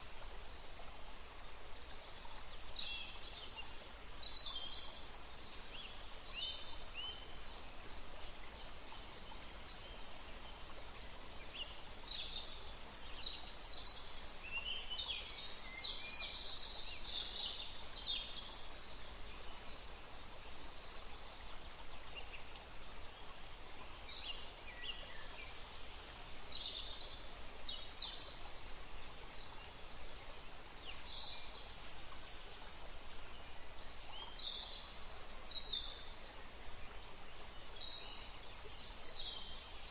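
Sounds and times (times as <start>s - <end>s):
steady soft hiss: 0.0s - 39.9s.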